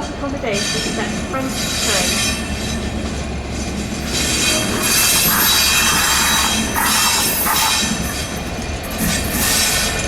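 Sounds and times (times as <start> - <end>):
train rumbling past: 0.0 - 10.0
metallic squealing: 4.0 - 8.5.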